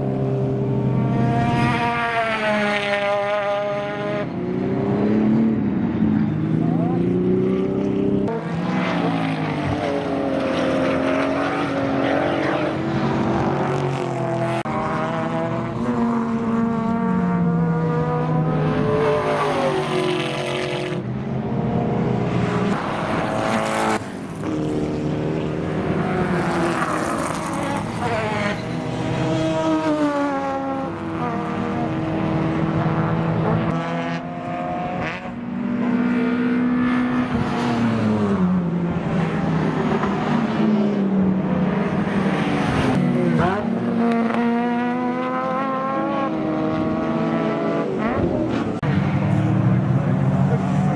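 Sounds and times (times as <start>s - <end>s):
racing car engines revving: 0.0s - 50.9s.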